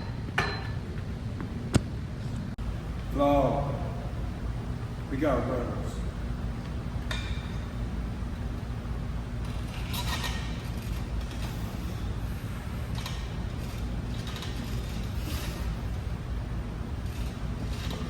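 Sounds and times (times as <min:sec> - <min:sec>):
gym room hum: 0:00.0 - 0:18.0
exercise equipment clinks and scrapes: 0:09.4 - 0:12.0, 0:12.9 - 0:15.9, 0:17.0 - 0:18.0.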